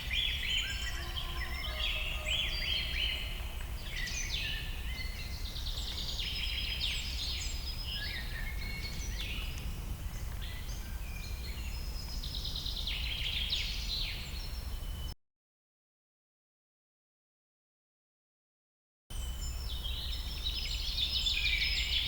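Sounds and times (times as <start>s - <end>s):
birds chirping and trilling: 0.0s - 15.2s, 19.1s - 22.0s.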